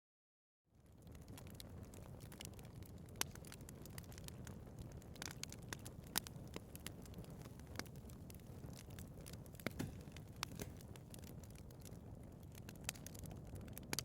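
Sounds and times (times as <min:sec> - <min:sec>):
fire crackling and popping: 0:00.7 - 0:14.0
fire rumbling: 0:00.7 - 0:14.0.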